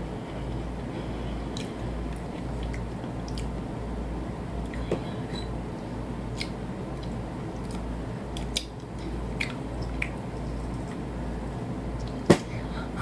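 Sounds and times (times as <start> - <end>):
low steady hum: 0.0 - 13.0
person chewing food: 1.4 - 3.6, 6.3 - 11.1.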